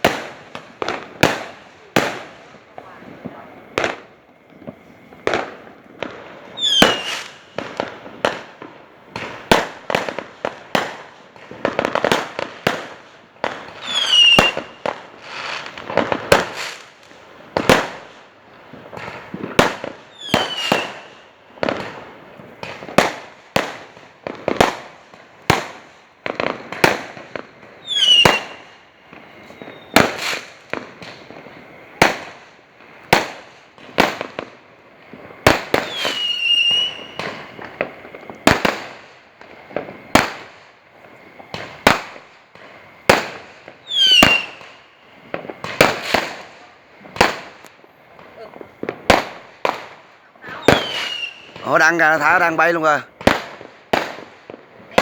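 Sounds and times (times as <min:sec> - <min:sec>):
firework bangs: 0:00.0 - 0:55.0
firework whistles falling in pitch: 0:04.6 - 0:08.4, 0:11.7 - 0:16.9, 0:19.0 - 0:21.9, 0:25.5 - 0:31.4, 0:35.4 - 0:39.0, 0:43.0 - 0:46.6, 0:48.4 - 0:53.0, 0:54.5 - 0:55.0.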